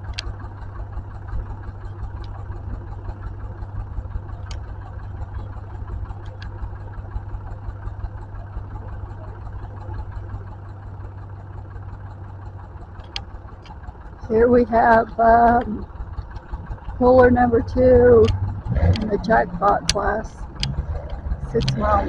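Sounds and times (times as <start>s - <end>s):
tractor engine idling: 0.0s - 22.0s
faint ticks: 18.2s - 21.8s.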